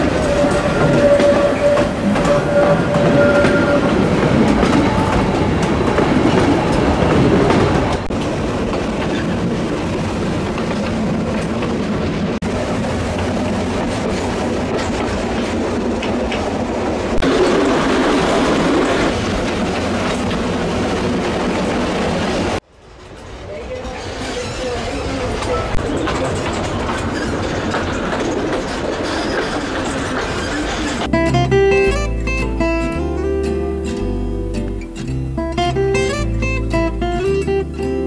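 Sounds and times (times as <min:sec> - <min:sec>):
steady high tone: 0:00.0 - 0:07.3
wheels clicking over rail joints: 0:00.0 - 0:31.1
carriages rumbling along track: 0:00.0 - 0:38.0.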